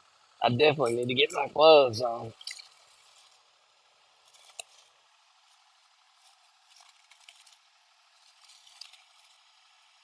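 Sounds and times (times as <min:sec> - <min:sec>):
work gloves rustling: 0:02.4 - 0:09.8.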